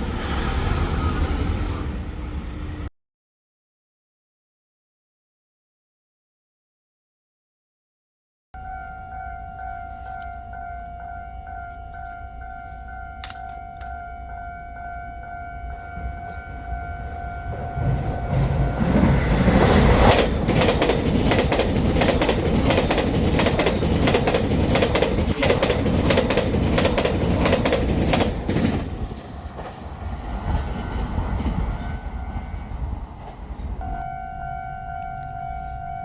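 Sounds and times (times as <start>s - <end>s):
steady high tone: 8.6s - 20.2s, 33.8s - 36.0s
train wheels clattering over joints: 17.8s - 29.9s.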